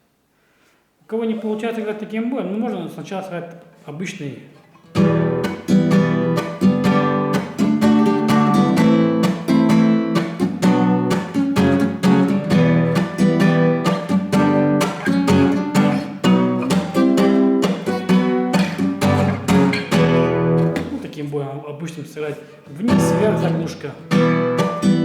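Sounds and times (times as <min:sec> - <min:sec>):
guitar chords strummed: 0:04.9 - 0:21.0, 0:22.9 - 0:25.0.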